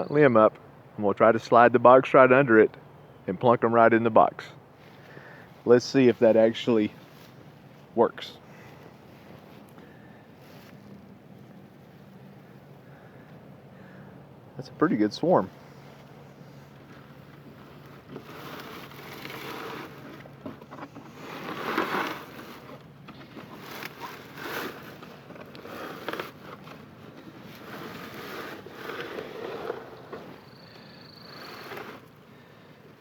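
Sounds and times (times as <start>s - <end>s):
rustling and scraping: 4.8s - 7.9s, 8.6s - 12.2s, 15.4s - 32.6s.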